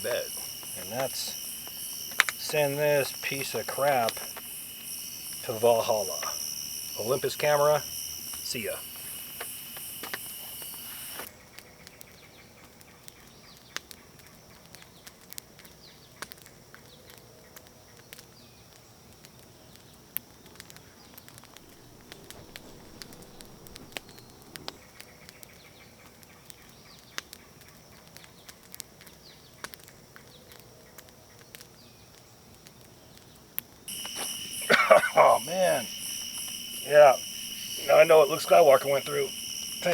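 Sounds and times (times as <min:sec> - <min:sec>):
crickets chirping: 0:00.0 - 0:11.3, 0:19.5 - 0:25.8, 0:33.9 - 0:39.9.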